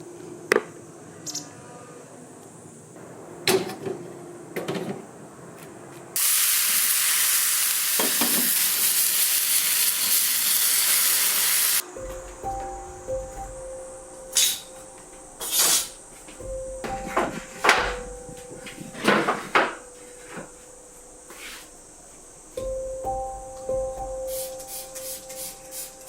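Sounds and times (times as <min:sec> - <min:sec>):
loud sizzling hiss: 0:06.2 - 0:26.0.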